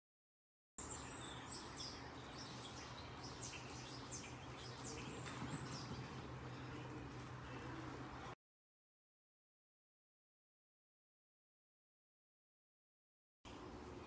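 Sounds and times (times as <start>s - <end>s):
small birds chirping: 0.8s - 8.4s
steady low hum: 0.8s - 8.4s.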